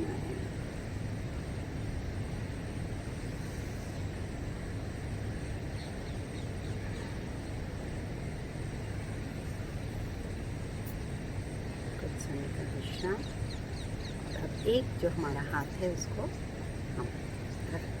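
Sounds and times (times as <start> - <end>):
hiss: 3.3 - 4.2.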